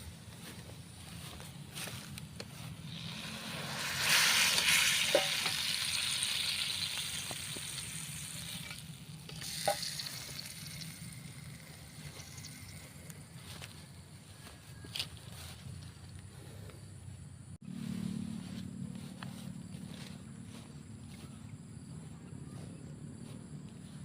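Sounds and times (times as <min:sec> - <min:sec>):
meat sizzling in hot oil: 0:02.9 - 0:12.8.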